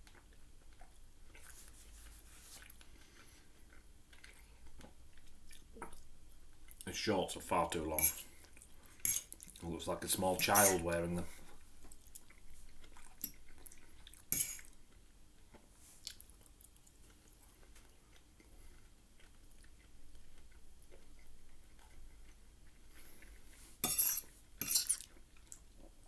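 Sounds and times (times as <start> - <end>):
cutlery clicking on plate: 8.0 - 8.3, 9.0 - 9.4, 14.3 - 14.7, 23.8 - 25.1
cutlery scraping on plate: 8.0 - 8.3, 9.0 - 9.4, 10.3 - 11.0, 14.3 - 14.7, 23.8 - 25.1.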